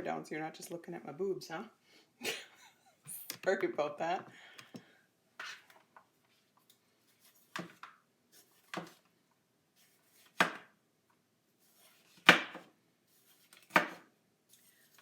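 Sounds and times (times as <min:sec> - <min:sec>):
knife chopping on cutting mat: 0:10.1 - 0:10.7, 0:12.0 - 0:12.7, 0:13.6 - 0:14.1.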